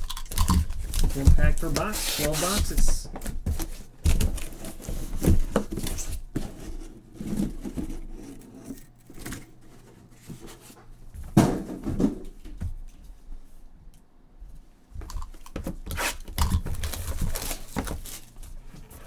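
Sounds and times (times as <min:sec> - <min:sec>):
cardboard boxes handled and opened: 0:00.6 - 0:10.8, 0:15.6 - 0:19.0.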